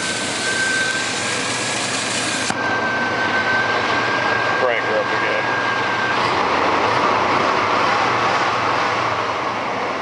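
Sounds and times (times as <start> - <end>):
thin steady whine: 0.0 - 10.0.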